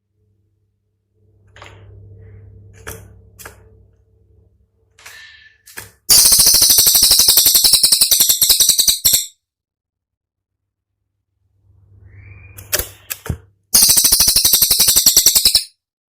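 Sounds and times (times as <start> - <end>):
bird rattling high notes: 13.8 - 15.7.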